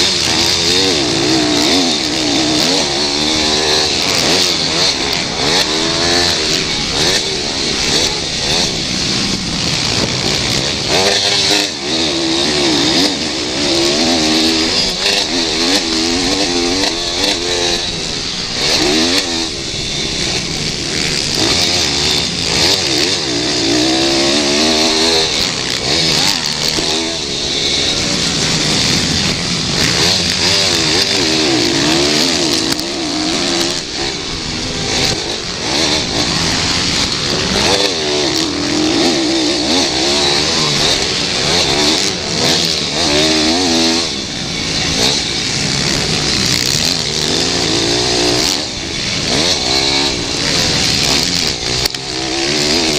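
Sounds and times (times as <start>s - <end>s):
pit bike engines revving: 0.0s - 52.9s.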